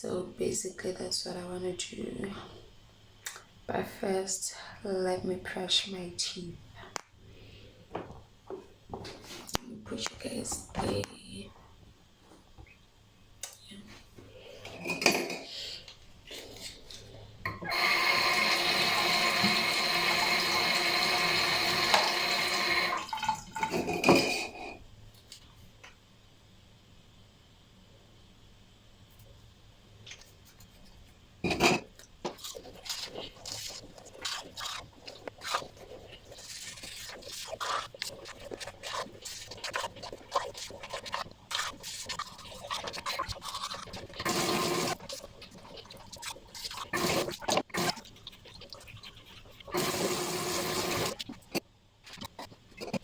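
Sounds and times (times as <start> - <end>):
tap running: 17.4 - 24.3
toothbrush scrubbing teeth: 30.1 - 53.0.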